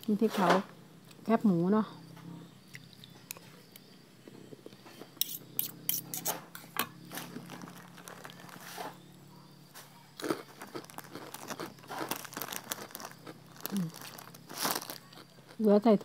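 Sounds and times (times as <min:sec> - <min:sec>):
person chewing crunchy food: 0:02.6 - 0:09.0, 0:09.7 - 0:15.6.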